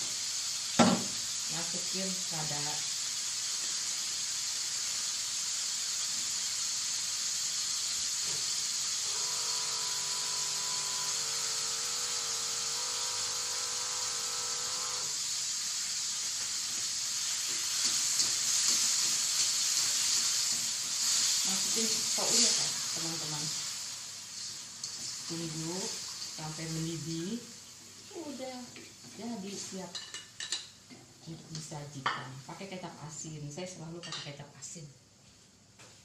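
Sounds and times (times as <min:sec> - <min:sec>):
food sizzling in a wok: 0:00.0 - 0:34.5.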